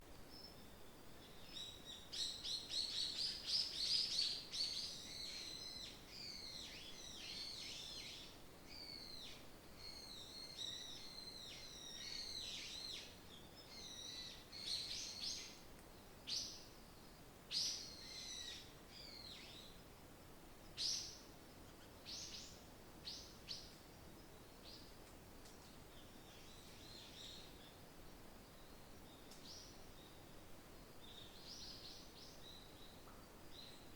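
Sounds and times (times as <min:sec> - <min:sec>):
faint background hiss: 0:00.0 - 0:33.9
small birds chirping: 0:00.2 - 0:19.8, 0:20.6 - 0:33.9.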